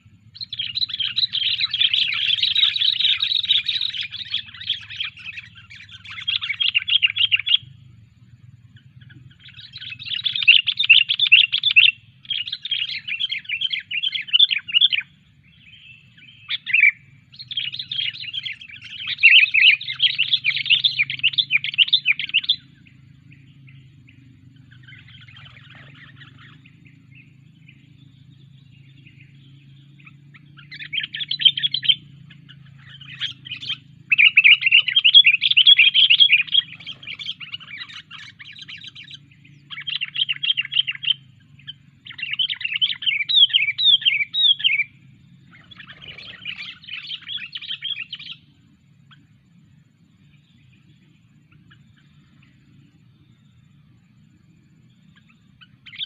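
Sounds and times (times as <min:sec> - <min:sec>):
faint low hum: 0:00.0 - 0:56.0
bulbul chirping: 0:00.2 - 0:49.5.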